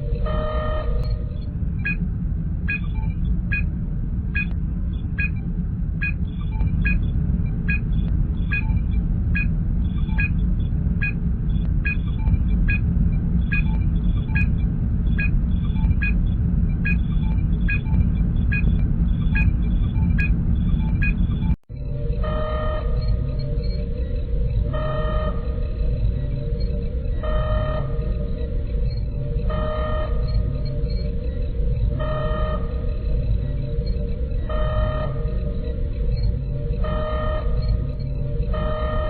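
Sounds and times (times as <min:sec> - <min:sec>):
low engine rumble: 0:00.0 - 0:39.0
high computer beeps: 0:07.6 - 0:10.4.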